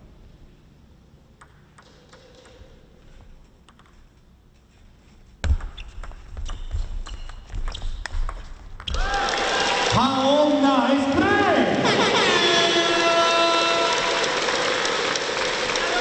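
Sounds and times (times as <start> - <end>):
table tennis ball clicking: 1.4 - 2.9, 3.6 - 4.0, 5.6 - 9.0
crowd clapping and banging: 8.8 - 10.3, 12.8 - 16.0.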